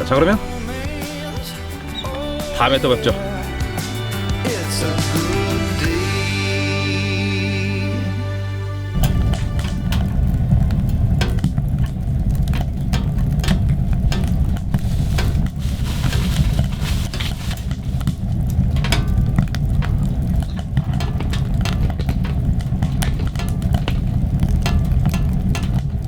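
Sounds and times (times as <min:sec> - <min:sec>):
steady low rumble: 0:00.0 - 0:26.0
scattered clicks and taps: 0:09.0 - 0:26.0.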